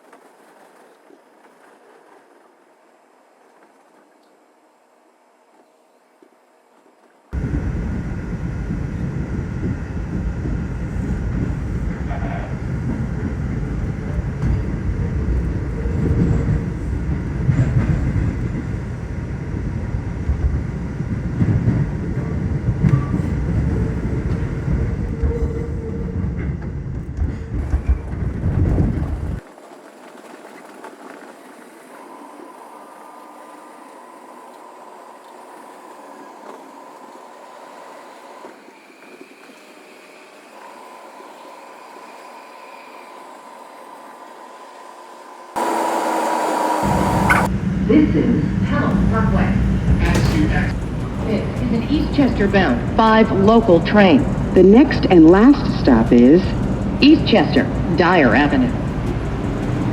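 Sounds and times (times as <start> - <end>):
subway train rumbling: 7.3 - 59.9
steady hum: 7.4 - 27.0, 40.6 - 59.9
wheels clattering on rails: 7.4 - 47.9, 48.5 - 59.9.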